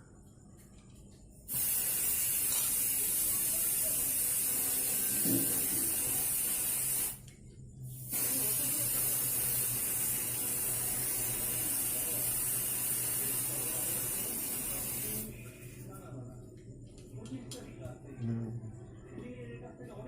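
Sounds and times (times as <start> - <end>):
pressurised spray hissing: 1.5 - 7.2, 8.0 - 15.4.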